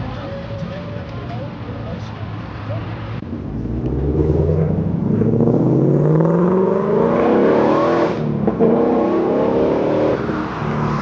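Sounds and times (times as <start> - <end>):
car engine accelerating hard: 3.2 - 11.0.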